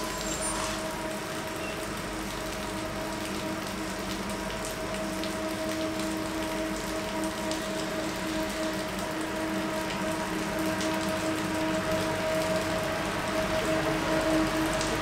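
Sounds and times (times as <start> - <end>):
passenger train droning: 0.0 - 2.0, 5.4 - 15.0
rain hiss: 0.0 - 15.0.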